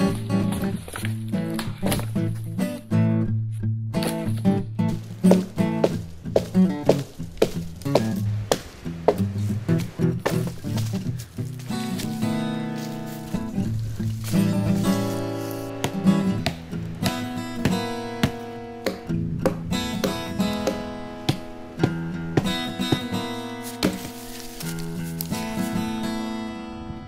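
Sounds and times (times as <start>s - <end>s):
acoustic guitar strumming chords: 0.0s - 27.0s.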